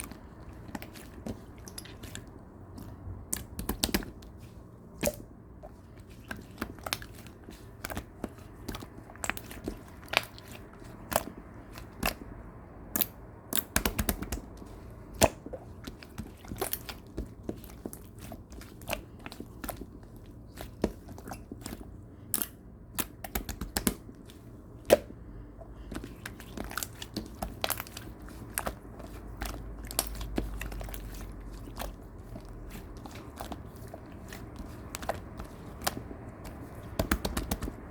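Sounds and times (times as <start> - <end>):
slime squishing: 0.0 - 37.9
slime clicking and popping: 12.9 - 14.5.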